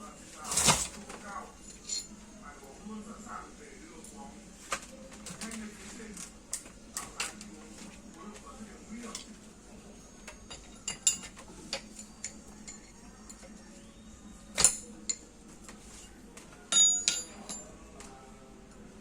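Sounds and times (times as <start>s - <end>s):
metal tools clinking: 0.5s - 1.0s, 1.6s - 2.2s, 10.4s - 13.4s, 14.6s - 15.2s, 16.7s - 17.7s
ringing metallic clanks: 16.7s - 17.7s.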